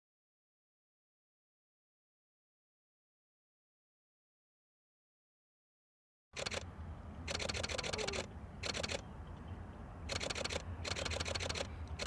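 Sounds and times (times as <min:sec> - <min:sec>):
camera shutter clicking in bursts: 0:06.4 - 0:06.7, 0:07.3 - 0:09.0, 0:10.1 - 0:12.0.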